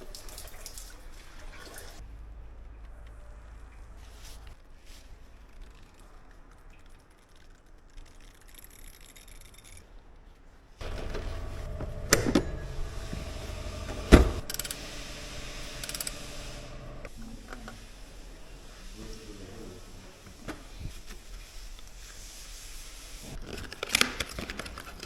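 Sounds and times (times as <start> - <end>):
steady background noise: 6.8 - 19.0
sharp metallic clicks: 11.0 - 17.1.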